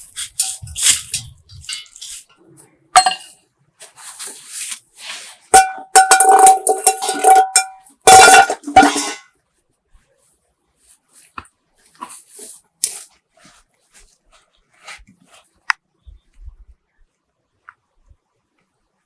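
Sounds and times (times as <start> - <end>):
scraping rustles: 0.0 - 2.4, 3.8 - 5.6
metal objects clanking: 0.2 - 2.3, 3.0 - 3.3, 5.6 - 9.3.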